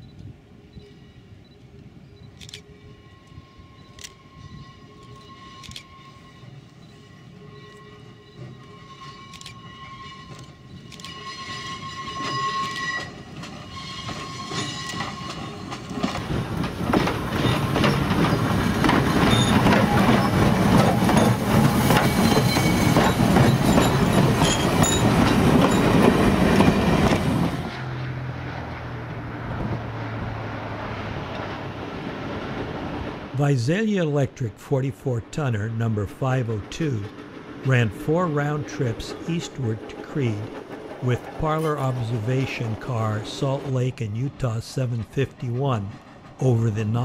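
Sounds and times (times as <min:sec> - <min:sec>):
electric railcar whine: 0:00.0 - 0:33.4, 0:35.6 - 0:44.5, 0:45.8 - 0:47.0
train wheels clacking over rail joints: 0:10.2 - 0:27.6, 0:36.7 - 0:43.8.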